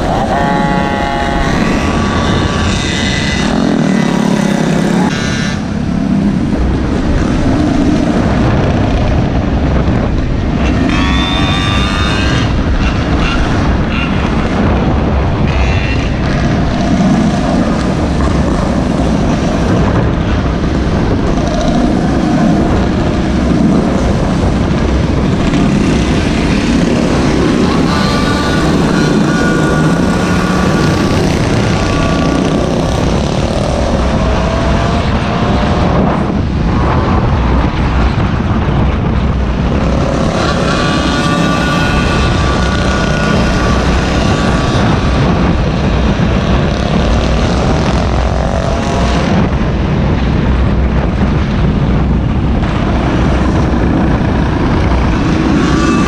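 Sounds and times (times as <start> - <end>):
engine revving with buzzing note: 0.0 - 50.3, 52.3 - 56.0
heavy rushing noise: 0.0 - 56.0
small engines running: 10.6 - 14.7, 20.6 - 35.8, 39.6 - 49.5.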